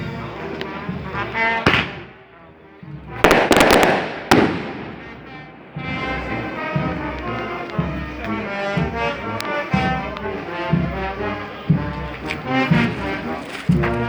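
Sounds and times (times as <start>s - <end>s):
brass band playing a march: 0.0s - 14.0s
bass drum beating: 3.0s - 14.0s
sharp crack: 3.2s - 5.2s.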